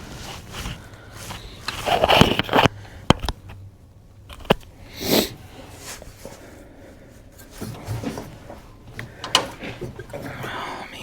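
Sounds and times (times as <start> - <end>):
sharp clicks and knocks: 1.7 - 3.6, 7.6 - 10.3.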